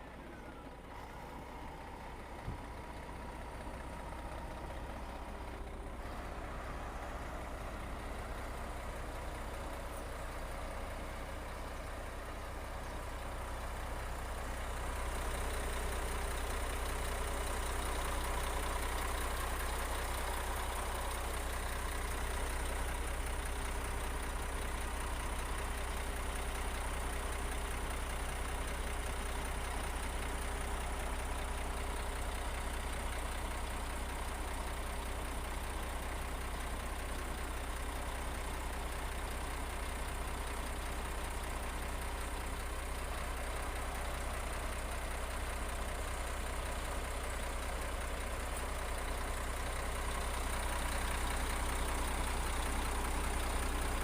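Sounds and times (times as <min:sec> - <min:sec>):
heavy machine engine droning: 0:00.0 - 0:25.1.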